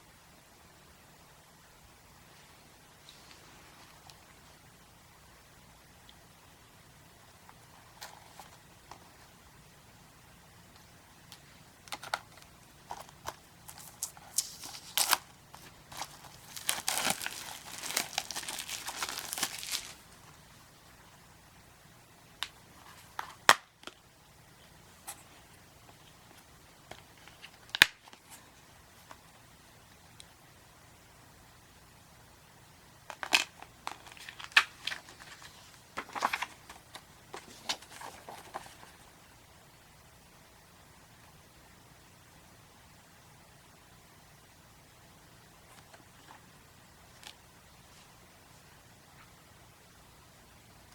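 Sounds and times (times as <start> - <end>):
plastic packaging clicking and crinkling: 11.3 - 20.2, 33.1 - 38.9
plastic wrap crinkling and tearing: 13.0 - 20.2.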